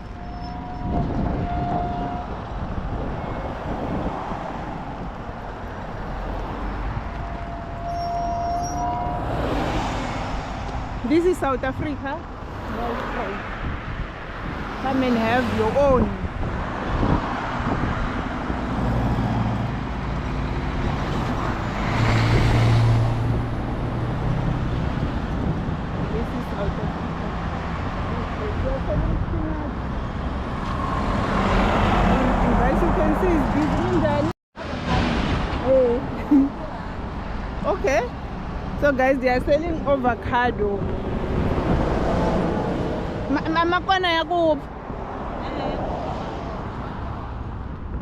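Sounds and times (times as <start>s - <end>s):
road traffic passing: 0.0s - 48.0s.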